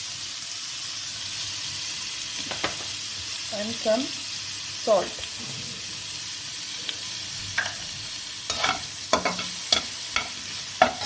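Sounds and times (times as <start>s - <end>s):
chicken sizzling in a pan: 0.0s - 11.0s
utensil scraping a pan: 7.5s - 11.0s.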